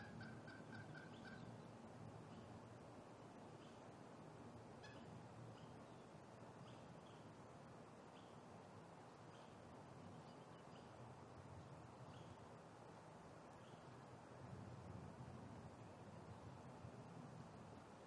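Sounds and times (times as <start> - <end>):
low background hiss: 0.0 - 18.0
small bird chirping: 4.8 - 7.3, 8.1 - 8.4, 9.3 - 11.0, 12.0 - 12.4.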